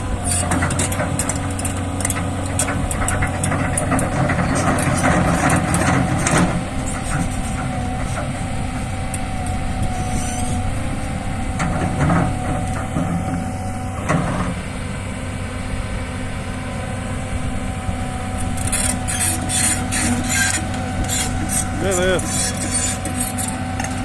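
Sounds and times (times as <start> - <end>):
heavy diesel engine running: 0.0 - 24.0
short clunks: 11.5 - 14.7.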